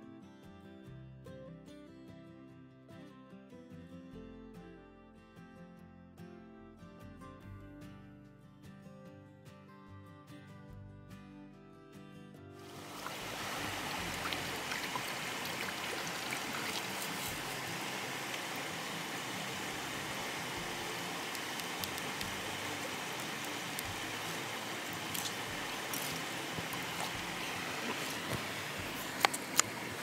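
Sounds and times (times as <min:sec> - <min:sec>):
river flowing: 0:12.6 - 0:30.0
faint small clicks: 0:21.2 - 0:22.5.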